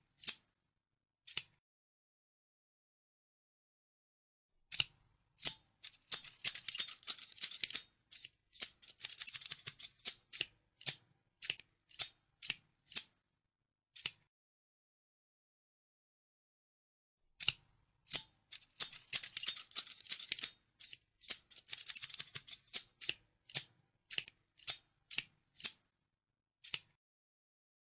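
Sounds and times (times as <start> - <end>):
scissors snipping: 0.2 - 0.5, 1.3 - 1.6, 4.7 - 13.1, 14.0 - 14.2, 17.4 - 25.8, 26.6 - 27.0.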